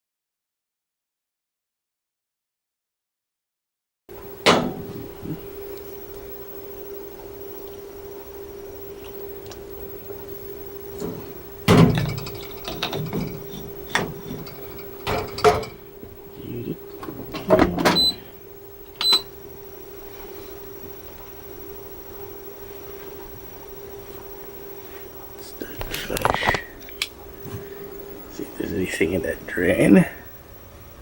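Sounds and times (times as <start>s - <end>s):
steady hum: 4.1s - 31.0s
dishwasher door and racks clunking: 4.4s - 5.3s, 10.9s - 15.9s, 17.0s - 18.2s.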